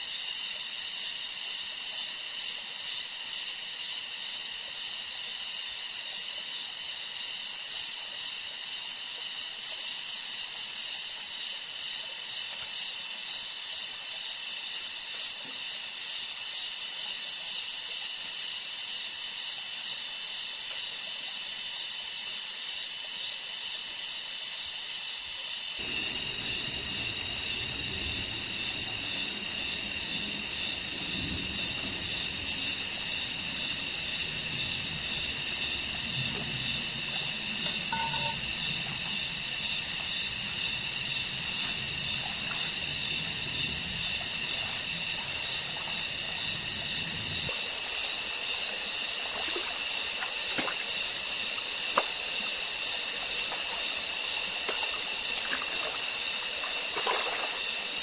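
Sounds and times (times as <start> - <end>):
cicadas chorus: 0.0 - 58.0
low rumble: 25.8 - 47.5.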